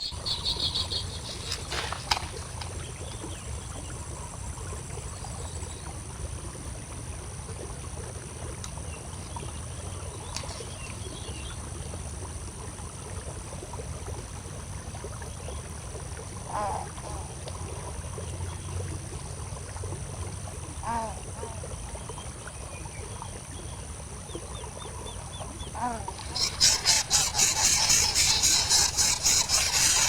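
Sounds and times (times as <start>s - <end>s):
high-pitched insect drone: 0.0s - 2.0s, 26.1s - 30.0s.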